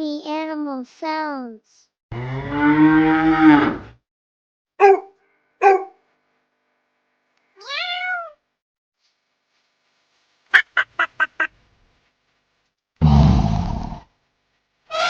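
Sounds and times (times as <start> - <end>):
cow mooing: 2.1 - 3.9
dog barking: 4.8 - 6.0
cat meowing: 7.6 - 8.4.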